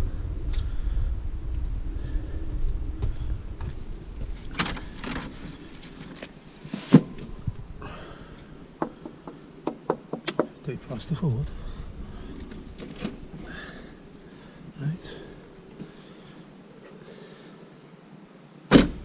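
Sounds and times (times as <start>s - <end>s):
low rumble: 0.0s - 6.1s, 7.2s - 8.8s, 10.8s - 15.7s
sharp knocks and clunks: 8.8s - 10.6s.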